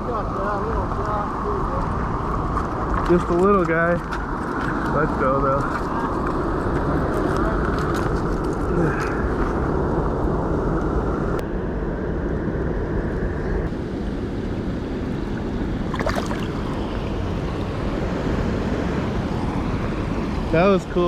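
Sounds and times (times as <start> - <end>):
wind buffeting microphone: 0.0 - 21.0
river water rushing: 15.8 - 20.6.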